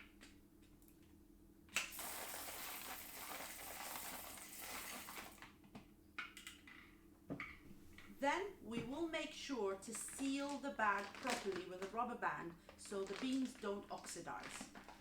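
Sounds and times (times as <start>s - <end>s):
coffee beans pouring into bag: 1.9s - 5.4s, 9.9s - 15.0s.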